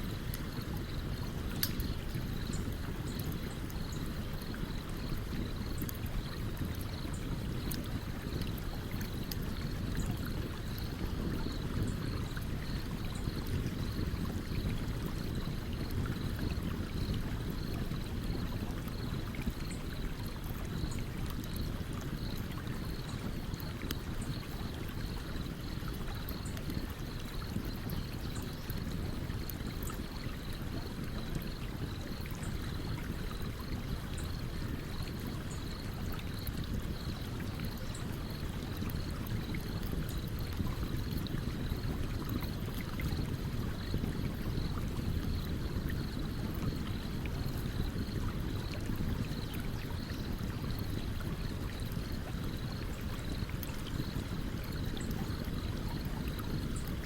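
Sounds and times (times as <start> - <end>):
campfire crackling and popping: 0.2 - 12.1.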